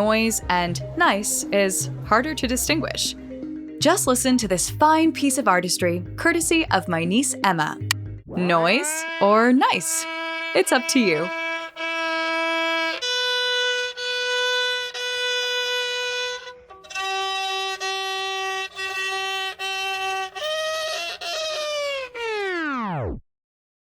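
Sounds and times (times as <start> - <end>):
violin long bowed notes: 8.3 - 22.6.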